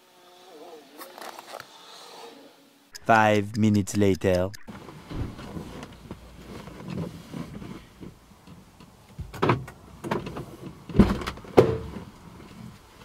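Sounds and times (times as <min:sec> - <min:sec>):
car door knocks and thuds: 0:10.9 - 0:11.9.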